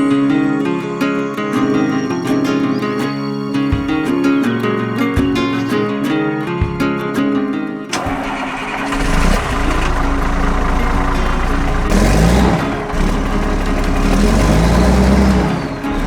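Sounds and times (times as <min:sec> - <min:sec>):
steam locomotive running: 0:08.0 - 0:16.0.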